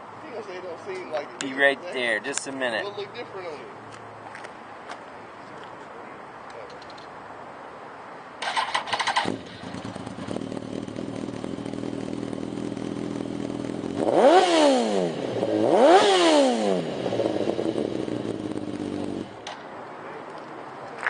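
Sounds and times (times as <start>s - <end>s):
motorcycle starter cranking: 8.4s - 11.9s
motorcycle engine revving: 8.4s - 19.4s
motorcycle engine idling: 8.9s - 14.1s, 16.9s - 19.4s.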